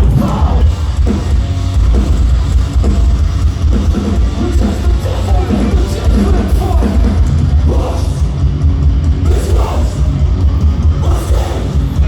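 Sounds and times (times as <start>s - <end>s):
vocalist singing: 0.0s - 1.0s, 4.2s - 12.0s
distorted guitars: 0.0s - 12.0s
drum kit: 0.0s - 12.0s
heavy booming bass: 0.0s - 12.0s.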